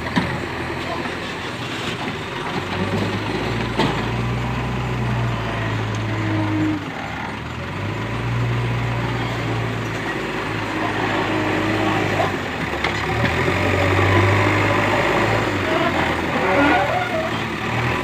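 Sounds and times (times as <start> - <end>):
diesel engine revving: 0.0 - 18.0.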